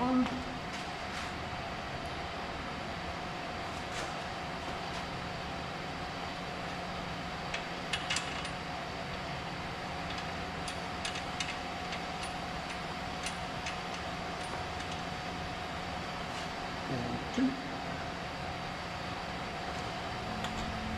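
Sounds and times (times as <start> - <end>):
steady background hum: 0.0 - 20.9
clicks and clinks of car parts: 7.5 - 8.6, 10.1 - 15.0.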